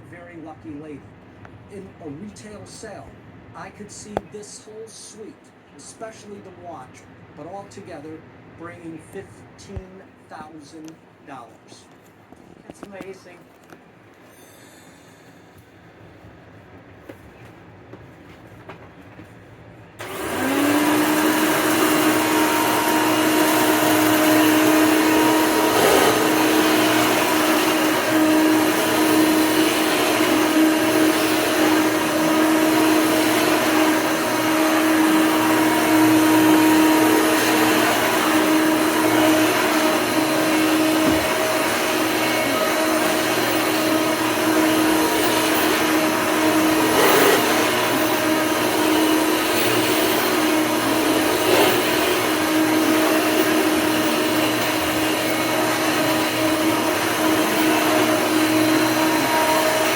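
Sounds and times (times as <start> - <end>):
vacuum cleaner running: 20.0 - 59.9.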